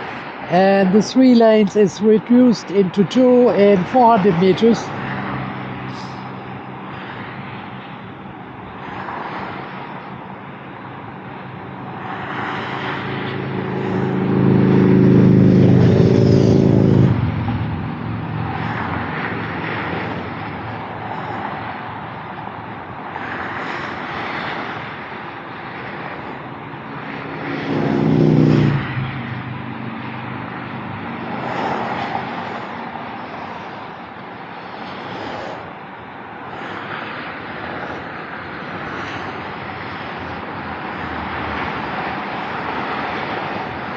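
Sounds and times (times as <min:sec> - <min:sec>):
vehicle engine drone: 0:00.0 - 0:43.9
tyres hissing on road: 0:05.0 - 0:07.8, 0:11.3 - 0:14.2.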